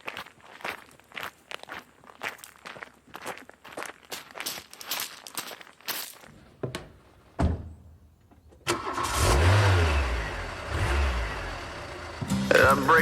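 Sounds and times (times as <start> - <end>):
engine cranking and starting: 8.6 - 13.0.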